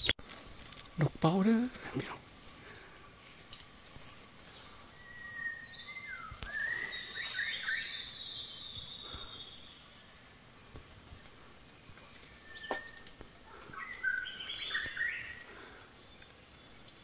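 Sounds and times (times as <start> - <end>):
bird whistling call: 5.0 - 9.6, 13.8 - 15.4.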